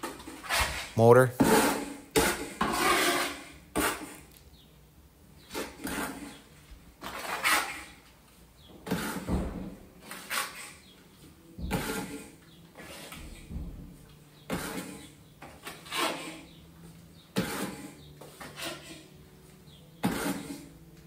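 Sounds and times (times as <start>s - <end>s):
trowel scraping mortar: 0.0s - 4.3s, 5.5s - 8.0s, 8.8s - 9.3s, 10.0s - 10.9s, 11.7s - 13.5s, 14.4s - 16.6s, 17.2s - 19.1s, 20.0s - 20.8s.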